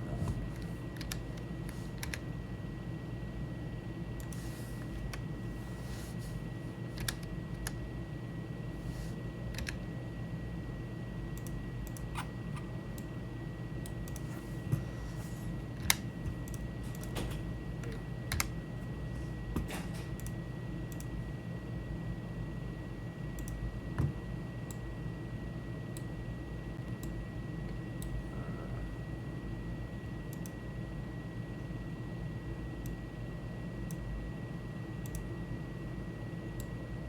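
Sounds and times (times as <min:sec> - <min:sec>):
steady low hum: 0:00.0 - 0:37.0
computer keyboard keys: 0:00.9 - 0:02.2, 0:07.0 - 0:07.8, 0:09.6 - 0:09.8, 0:18.3 - 0:18.6.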